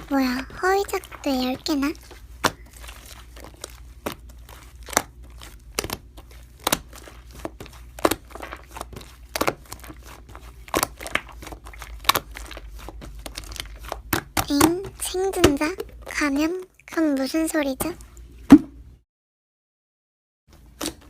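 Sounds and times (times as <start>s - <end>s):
slime squishing pops: 2.4s - 15.9s.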